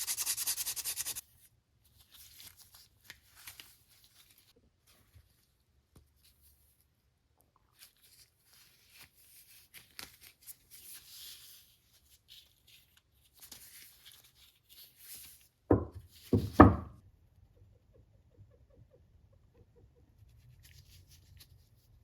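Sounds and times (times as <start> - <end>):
rustling: 1.9 - 6.9.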